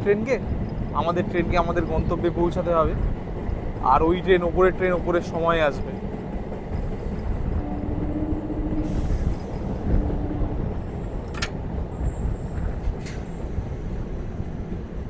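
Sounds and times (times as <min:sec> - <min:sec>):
train wheels rumbling on rails: 0:00.0 - 0:15.0
steady hum: 0:07.6 - 0:11.4
sharp clicks: 0:11.2 - 0:11.7.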